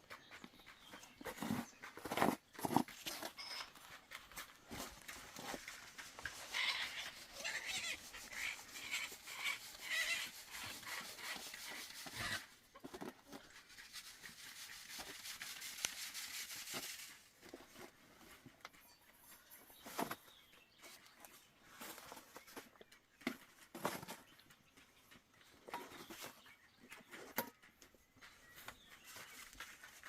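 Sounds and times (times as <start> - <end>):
animal high cries: 6.5 - 11.4.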